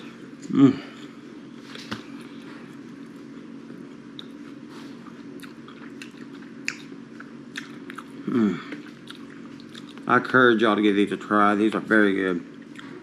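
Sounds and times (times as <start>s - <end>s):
person chewing food: 0.4s - 10.1s
throat hum: 8.2s - 9.0s.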